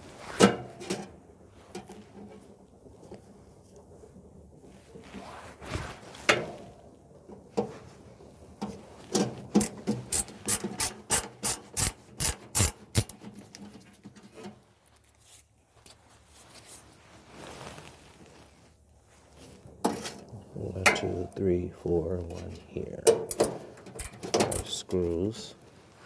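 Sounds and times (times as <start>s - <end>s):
sharp scraping clicks: 9.6s - 13.6s.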